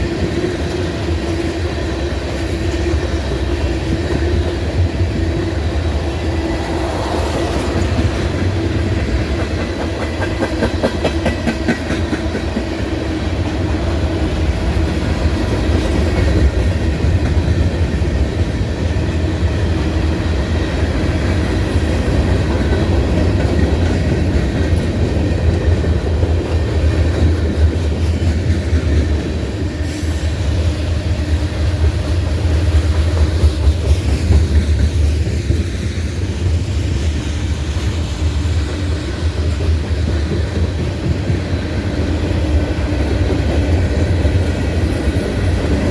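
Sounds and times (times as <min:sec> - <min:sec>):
train rumbling past: 0:00.0 - 0:45.9.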